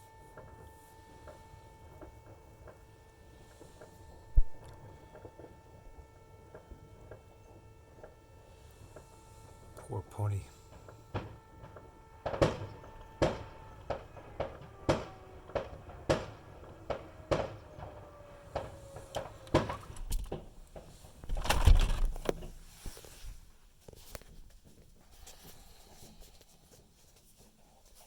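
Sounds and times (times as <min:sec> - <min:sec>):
fireworks whining: 0:00.0 - 0:23.5
fireworks banging: 0:00.3 - 0:23.2
rumbling firework boom: 0:04.2 - 0:05.2, 0:11.1 - 0:22.2.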